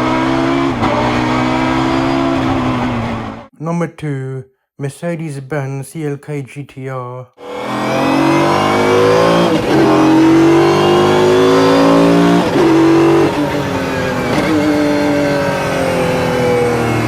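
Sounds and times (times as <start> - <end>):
racing engine accelerating with upshifts: 0.0 - 3.5, 7.4 - 17.0.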